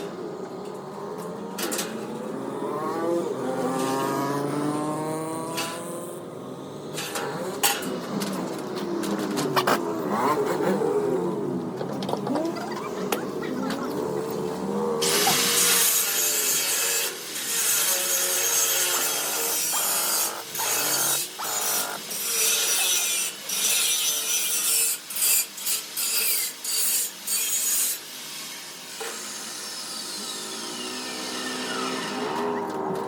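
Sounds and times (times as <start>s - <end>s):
angle grinder grinding steel: 12.4s - 32.5s
grinder disc winding down: 18.3s - 22.0s.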